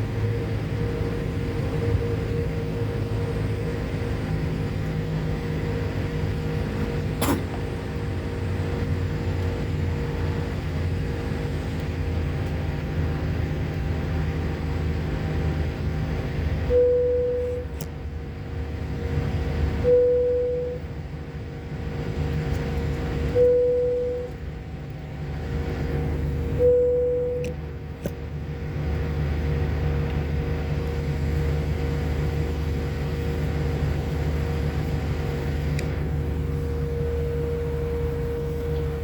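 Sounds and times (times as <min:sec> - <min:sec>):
airliner cabin rumble: 0:00.0 - 0:39.0
short steady tone: 0:26.6 - 0:27.5.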